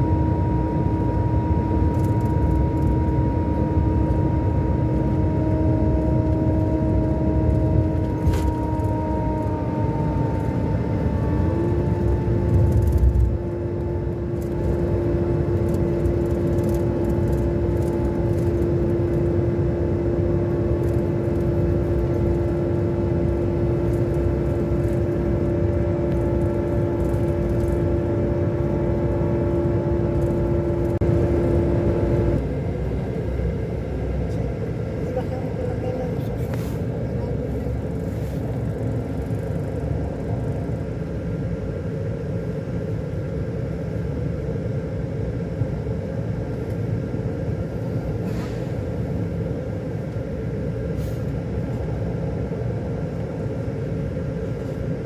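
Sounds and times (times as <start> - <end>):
steady whine: 0.0 - 36.1
coach engine rumbling: 0.0 - 55.0.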